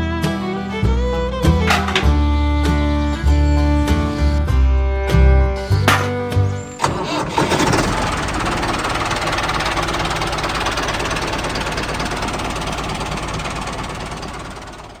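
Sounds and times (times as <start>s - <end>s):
guitar music: 0.0s - 7.1s
small motor rattling: 6.8s - 15.0s.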